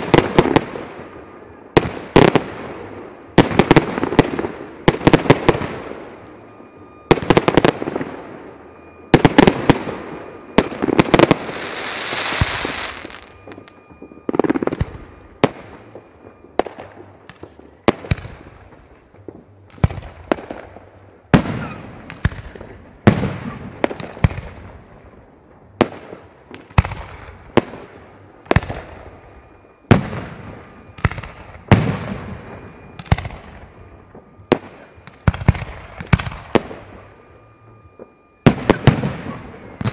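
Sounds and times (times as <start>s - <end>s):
fireworks bangs: 0.0s - 39.9s
hissing crackle of fireworks: 0.0s - 39.9s.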